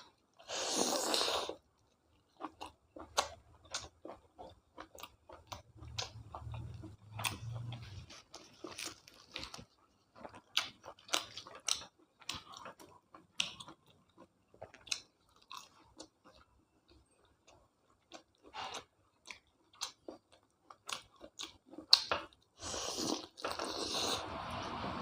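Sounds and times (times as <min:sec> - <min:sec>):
person chewing food: 0:00.0 - 0:24.9
low hum: 0:24.1 - 0:25.0.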